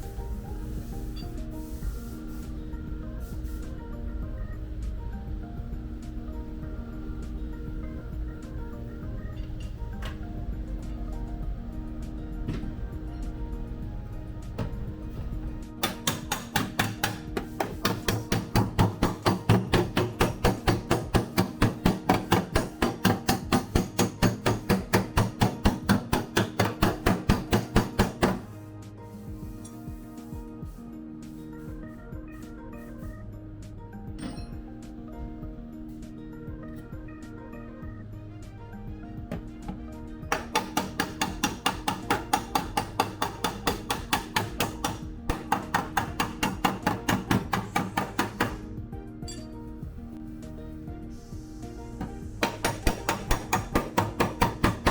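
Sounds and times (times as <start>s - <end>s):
background music: 0.0s - 54.9s
hammer striking steel panel: 15.8s - 28.5s, 40.3s - 48.6s.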